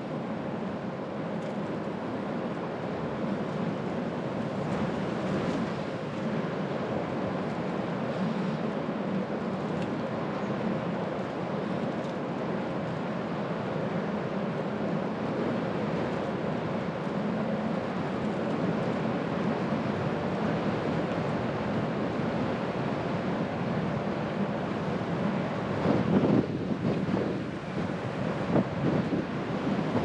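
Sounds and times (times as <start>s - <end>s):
wind on microphone: 18.0s - 30.0s.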